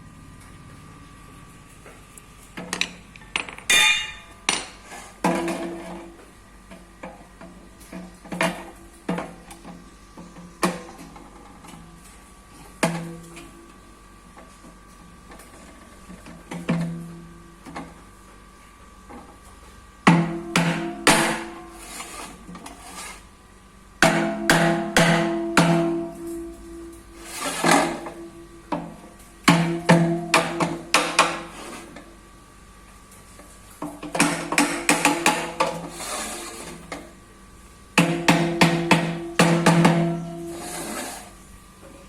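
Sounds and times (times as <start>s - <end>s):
faint steady hum: 0.0s - 42.0s
metal strikes on washing machine drum: 3.7s - 4.3s, 24.0s - 26.1s, 38.0s - 40.2s
metal strikes with ringing tail: 3.7s - 4.4s.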